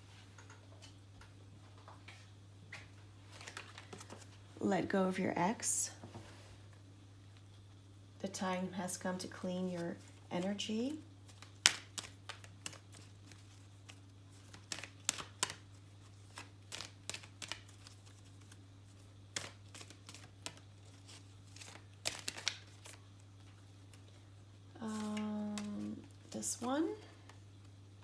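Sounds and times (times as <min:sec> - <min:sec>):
low electrical hum: 0:00.0 - 0:28.0
cards clicking and tapping: 0:11.3 - 0:18.6, 0:19.3 - 0:20.6, 0:21.6 - 0:23.0, 0:24.9 - 0:26.8.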